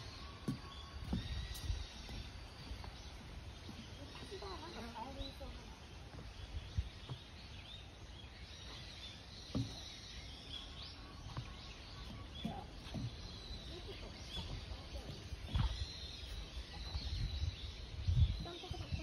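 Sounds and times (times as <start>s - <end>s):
small birds chirping: 0.0s - 19.0s
soft knocks: 9.5s - 10.0s.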